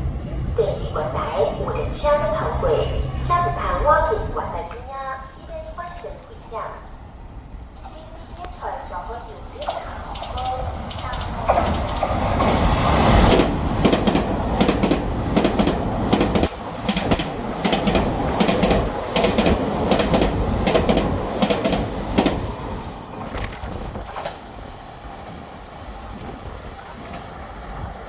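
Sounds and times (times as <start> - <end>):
train wheels clattering over rail joints: 9.6 - 25.5.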